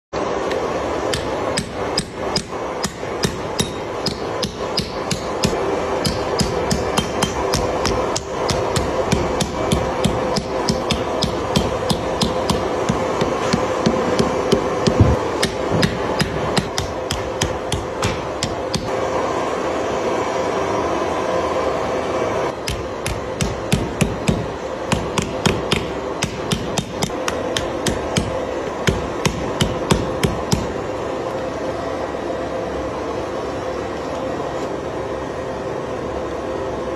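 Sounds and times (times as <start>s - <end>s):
steady background hum: 0.1s - 36.9s
hammer striking metal: 1.1s - 18.9s, 22.6s - 30.8s.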